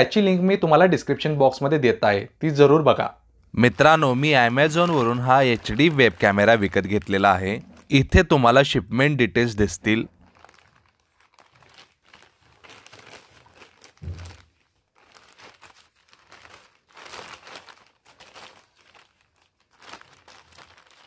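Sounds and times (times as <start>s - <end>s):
plastic bag crinkling: 3.6s - 8.8s, 9.4s - 21.0s.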